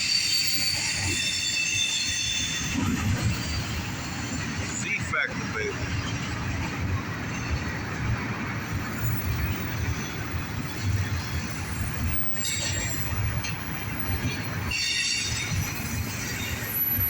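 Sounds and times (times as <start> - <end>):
high-pitched wheel squeals: 0.0 - 4.4, 11.4 - 17.0
train wheels rumbling on rails: 0.0 - 17.0.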